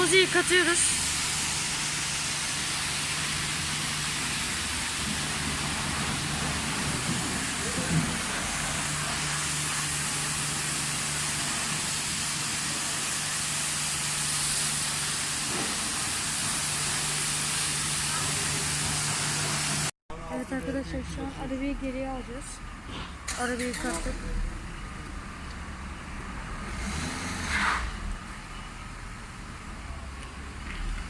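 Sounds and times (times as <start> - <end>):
high-pressure water spray hissing: 0.0 - 19.9, 26.6 - 28.1
constant low hum: 20.1 - 26.6.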